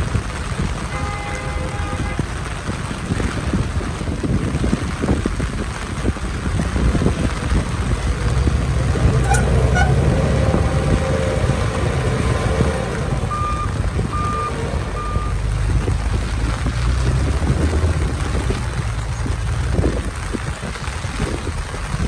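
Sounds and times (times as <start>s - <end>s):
diesel machinery rumbling: 5.0s - 22.0s
back-up alarm beeping: 13.3s - 15.4s.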